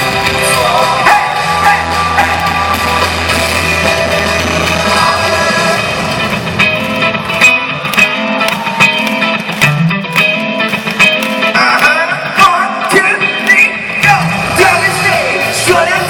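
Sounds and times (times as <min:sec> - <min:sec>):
steady drum beat: 0:00.0 - 0:07.6
electric guitar: 0:00.0 - 0:16.0
gliding guitar lead line: 0:00.0 - 0:16.0.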